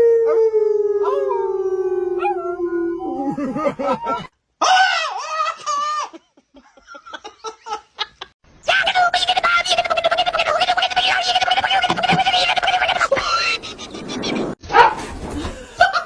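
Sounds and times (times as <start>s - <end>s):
dog howling: 0.0s - 3.5s.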